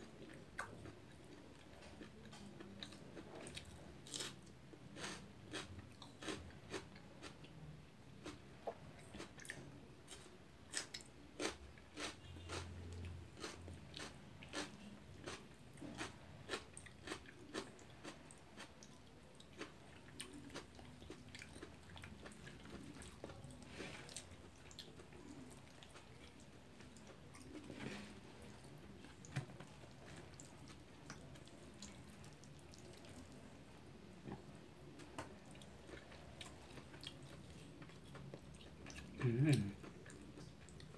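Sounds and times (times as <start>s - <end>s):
chewing and biting: 8.2s - 33.4s.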